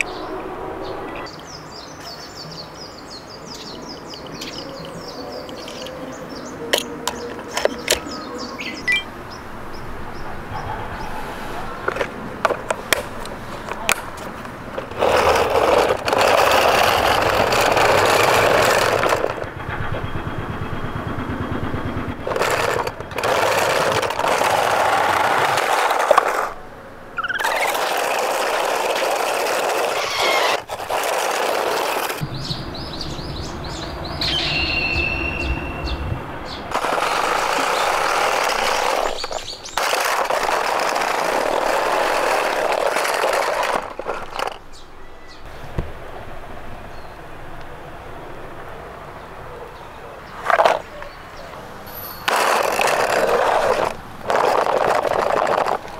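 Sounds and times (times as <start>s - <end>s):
bird chirps: 0.0s - 11.9s, 27.2s - 27.7s, 32.2s - 38.0s, 38.6s - 39.8s, 44.6s - 45.5s
toy cars rolling on plastic: 7.0s - 8.0s, 11.8s - 19.6s, 22.2s - 26.6s, 27.2s - 32.2s, 36.7s - 44.8s, 50.4s - 51.0s, 51.9s - 55.9s.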